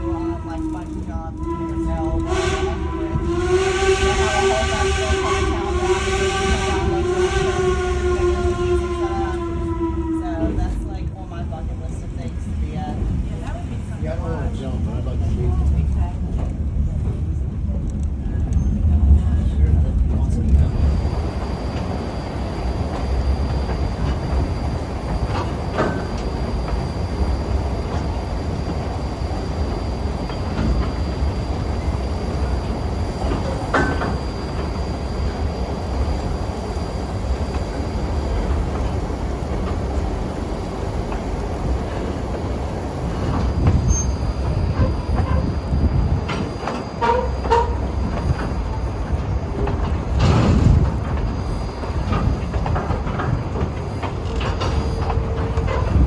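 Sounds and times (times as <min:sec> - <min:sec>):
train rumbling along rails: 0:00.0 - 0:56.0
train wheels clicking and squeaking: 0:20.5 - 0:56.0.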